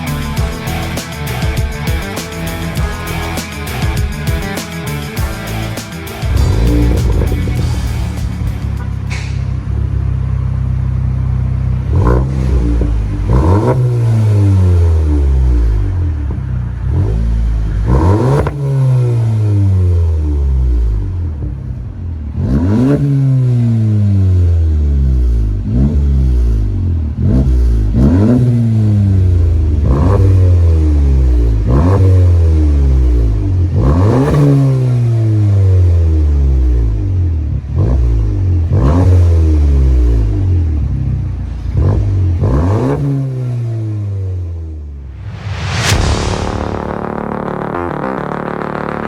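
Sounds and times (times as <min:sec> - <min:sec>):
car engine revving: 0:00.0 - 0:49.0.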